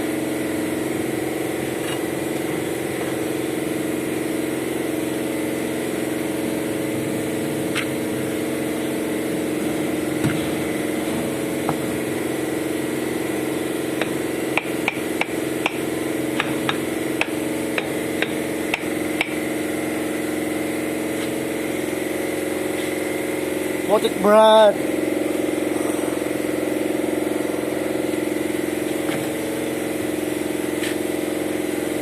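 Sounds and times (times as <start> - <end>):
machine drone: 0.0 - 32.0
sharp tool taps: 16.4 - 19.4.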